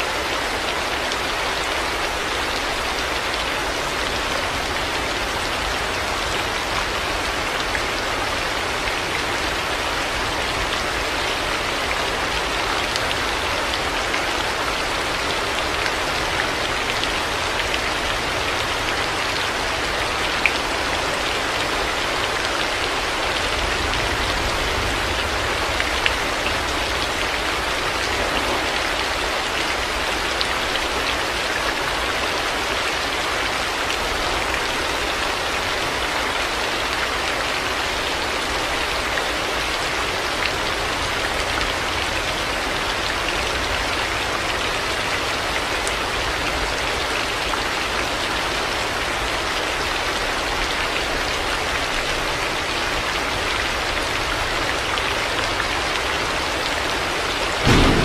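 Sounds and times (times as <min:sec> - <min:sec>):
heavy rain falling: 0:00.0 - 0:58.0
low rumble: 0:57.6 - 0:58.0.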